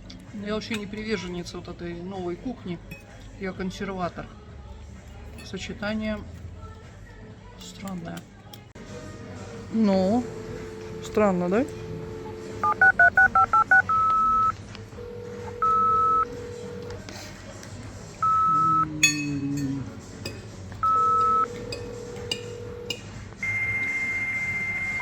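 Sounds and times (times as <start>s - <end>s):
steady higher tone: 9.4s - 16.8s
lower steady tone: 9.5s - 16.9s
long telephone beeps: 10.5s - 16.8s, 18.2s - 18.8s, 20.8s - 25.0s
keypad dialing beeps: 12.4s - 14.6s, 15.4s - 16.5s, 18.2s - 18.9s, 20.8s - 21.6s.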